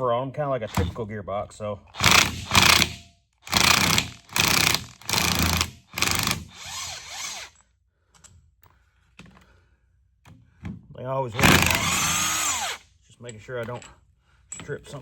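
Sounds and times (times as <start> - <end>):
ratchet wrench strokes: 2.0 - 7.6.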